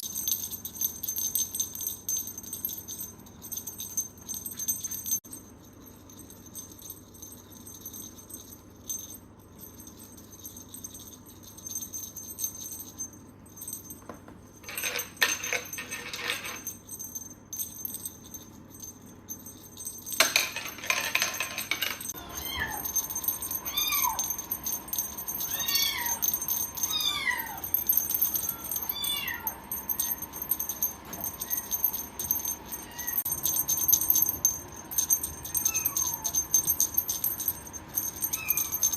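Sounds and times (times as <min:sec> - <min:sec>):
cat meowing: 0:22.2 - 0:22.9, 0:23.7 - 0:24.3, 0:25.5 - 0:26.2, 0:26.9 - 0:27.6, 0:28.5 - 0:29.6.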